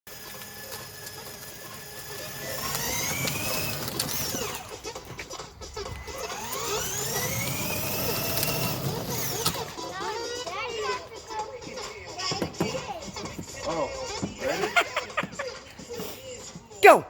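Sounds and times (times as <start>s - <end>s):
toy electric motor whining: 0.1s - 11.5s.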